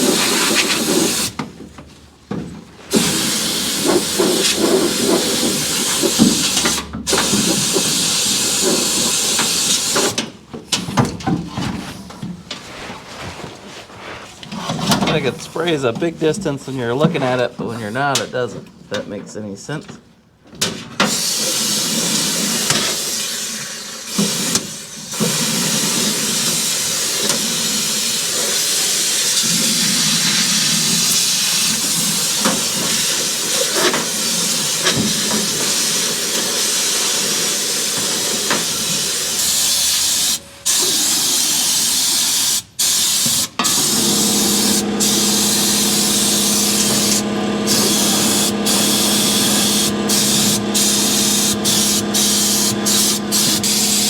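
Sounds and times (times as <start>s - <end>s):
spray gun hissing: 42.9s - 54.0s
steady low hum: 43.7s - 54.0s.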